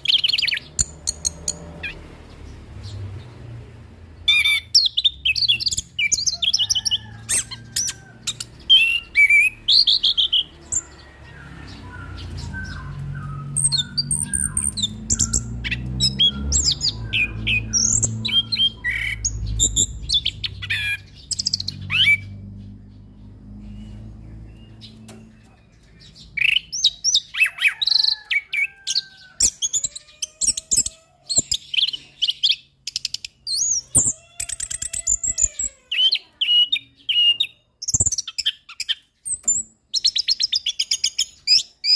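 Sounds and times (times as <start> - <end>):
thrush singing chirps and trills: 0.0 - 41.9
low rumble: 10.8 - 26.1.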